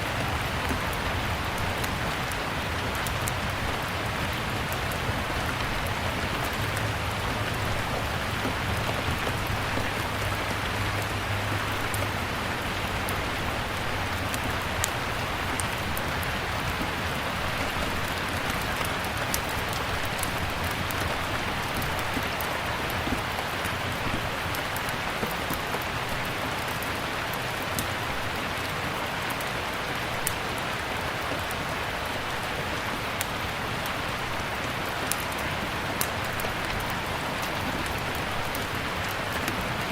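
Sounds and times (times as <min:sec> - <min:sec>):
steady rainfall: 0:00.0 - 0:39.9
wood fire crackling and popping: 0:13.4 - 0:25.9, 0:30.2 - 0:30.5, 0:34.8 - 0:39.9.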